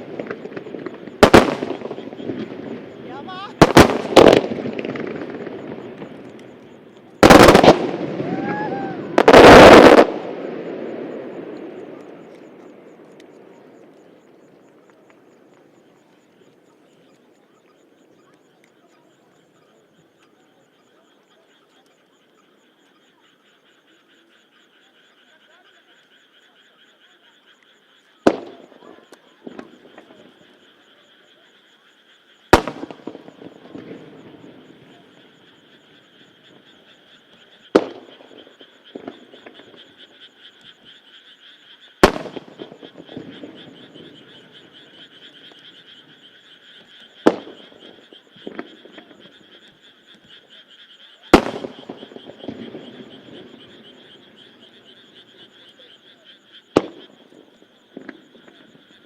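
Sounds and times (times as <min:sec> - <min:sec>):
firework shells bursting: 0:00.0 - 0:10.8, 0:32.5 - 0:34.8, 0:42.0 - 0:43.8, 0:51.3 - 0:53.6
frogs calling: 0:00.0 - 0:59.0.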